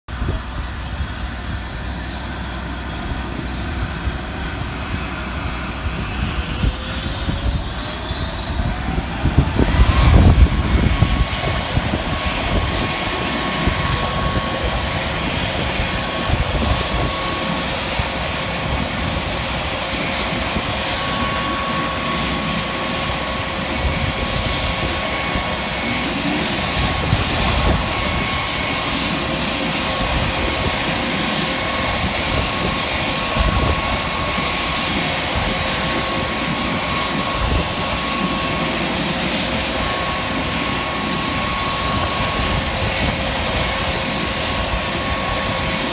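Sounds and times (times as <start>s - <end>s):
jet engine starting up: 0.1s - 45.9s
loud rumbling surge: 2.9s - 17.3s.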